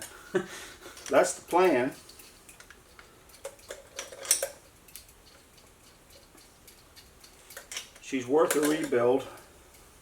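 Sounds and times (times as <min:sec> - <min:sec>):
small metal parts handled: 0:01.0 - 0:09.9
metallic clinks of hand tools: 0:06.6 - 0:09.9.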